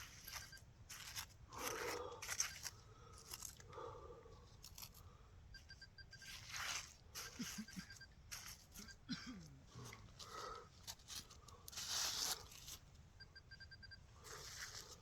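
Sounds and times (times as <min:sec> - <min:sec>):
faint electronic beeps: 0:00.0 - 0:01.2, 0:05.4 - 0:09.1, 0:13.1 - 0:15.0
digging tool scraping wet soil: 0:00.0 - 0:03.6, 0:06.2 - 0:08.8, 0:10.9 - 0:12.8.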